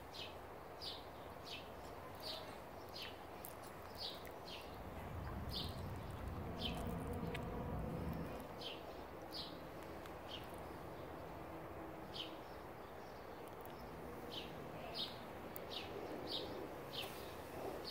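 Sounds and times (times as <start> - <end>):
faint outdoor hiss: 0.0 - 17.9
bird chirping: 0.1 - 11.4.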